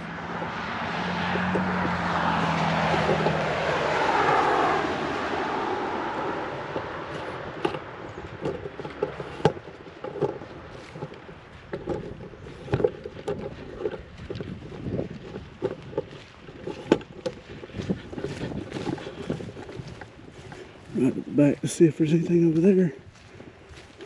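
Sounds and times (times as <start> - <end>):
vehicle passing by: 0.0 - 24.0
footsteps crunching through grass: 5.4 - 24.0.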